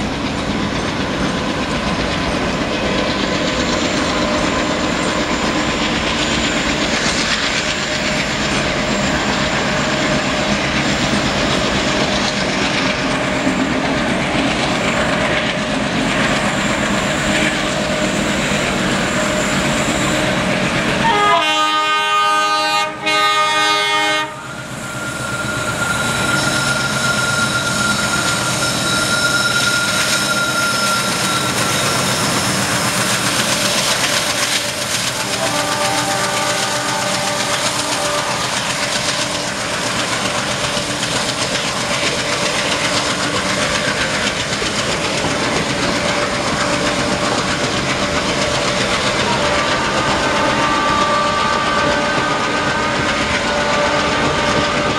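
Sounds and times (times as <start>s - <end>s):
train wheels rattling on rails: 0.0s - 54.9s
locomotive multi-tone horn: 20.2s - 31.8s, 35.0s - 39.5s, 49.0s - 54.9s.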